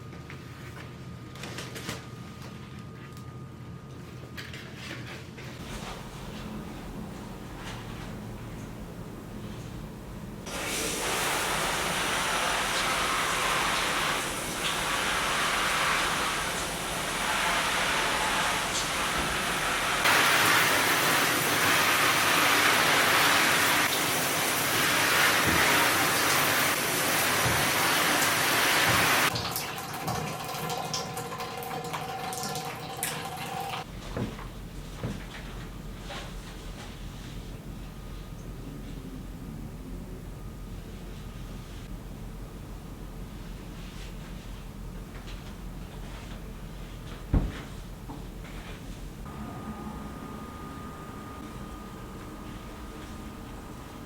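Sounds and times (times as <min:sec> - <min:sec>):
running water rushing: 0:05.6 - 0:29.4, 0:49.2 - 0:54.0.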